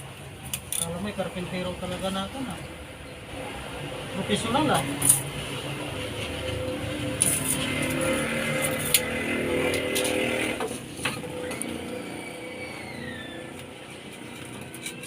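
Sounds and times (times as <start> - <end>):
falling whine: 5.7 - 14.4.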